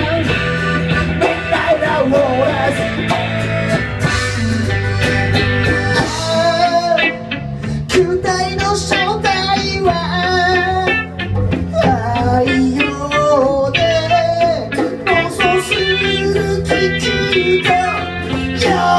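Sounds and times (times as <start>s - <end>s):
steady beat: 0.0s - 7.1s
guitar playing: 0.0s - 18.9s
person singing: 0.0s - 18.9s.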